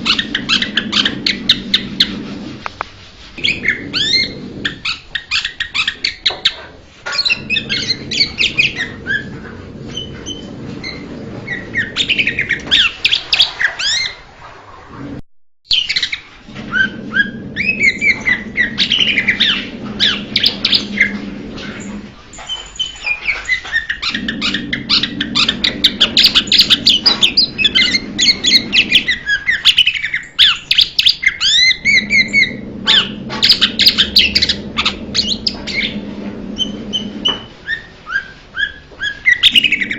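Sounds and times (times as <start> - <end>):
bird singing: 22.4 - 39.9
low hum: 31.7 - 37.6.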